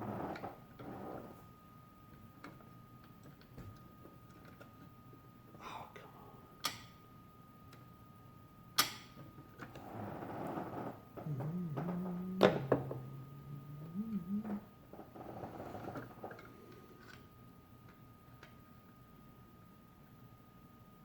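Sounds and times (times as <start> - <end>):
faint steady high tone: 11.2 - 14.6.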